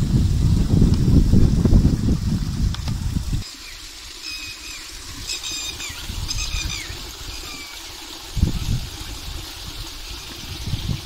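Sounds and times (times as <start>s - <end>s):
bird chirping: 3.6s - 7.8s.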